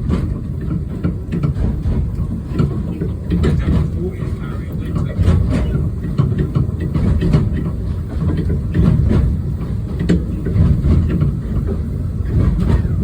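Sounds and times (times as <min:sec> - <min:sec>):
train rumbling: 0:00.0 - 0:13.0
wheels clicking on rail: 0:00.0 - 0:13.0.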